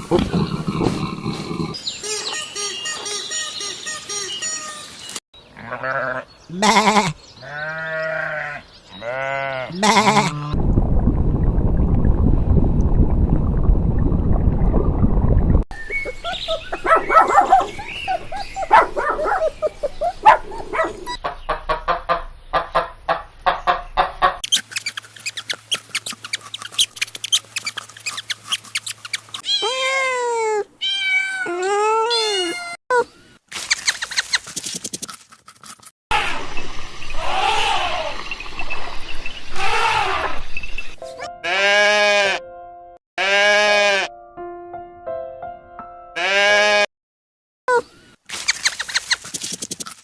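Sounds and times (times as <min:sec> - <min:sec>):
loud low rumble: 0:10.6 - 0:15.6
animal clicks and brief calls: 0:24.4 - 0:29.4, 0:33.6 - 0:35.2, 0:48.3 - 0:50.0
cat meowing: 0:29.4 - 0:32.8.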